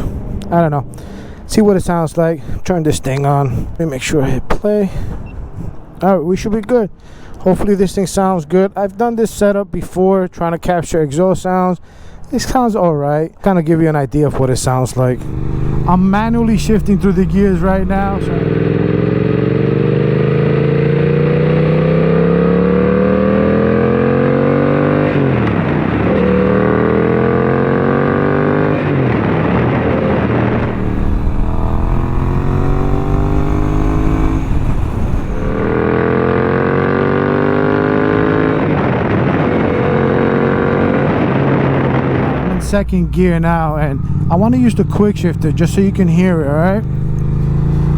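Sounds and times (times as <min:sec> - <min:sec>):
motorcycle accelerating through gears: 0:14.9 - 0:47.9.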